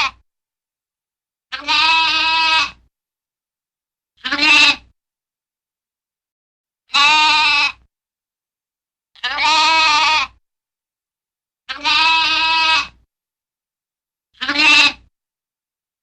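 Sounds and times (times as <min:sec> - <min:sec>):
farm animal bleating: 0:00.0 - 0:00.2, 0:01.5 - 0:02.8, 0:04.2 - 0:04.9, 0:06.9 - 0:07.9, 0:09.2 - 0:10.4, 0:11.7 - 0:13.0, 0:14.4 - 0:15.1.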